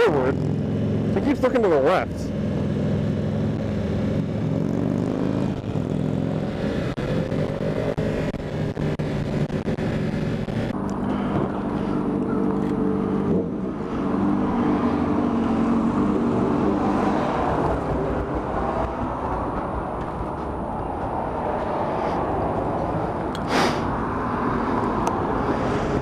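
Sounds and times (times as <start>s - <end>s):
low engine rumble: 0.0s - 16.7s.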